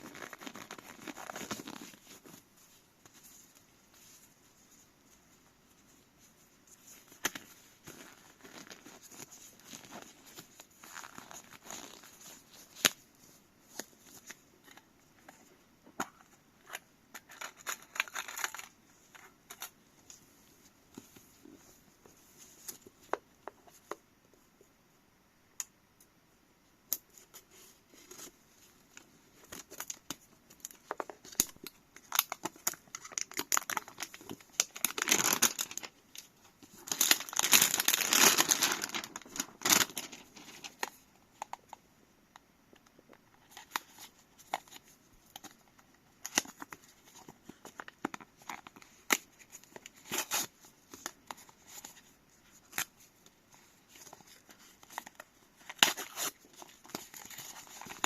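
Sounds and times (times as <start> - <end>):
wrapping tearing and crinkling: 0.0 - 2.4, 17.3 - 18.8, 29.4 - 40.9, 46.2 - 58.0
cardboard packaging rustling: 0.0 - 4.9, 29.3 - 41.0, 43.4 - 58.0.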